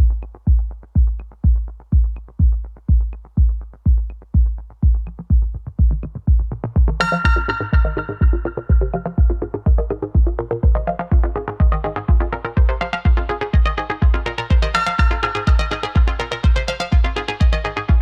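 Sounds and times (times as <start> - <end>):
kick drum beat: 0.0 - 18.0
bright synth melody: 7.0 - 9.9.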